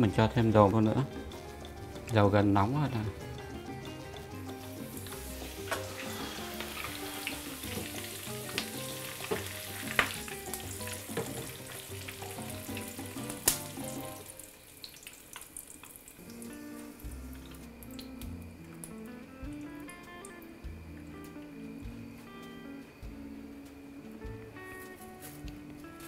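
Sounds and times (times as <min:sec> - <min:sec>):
leaves sizzling in hot oil: 0:00.0 - 0:20.4.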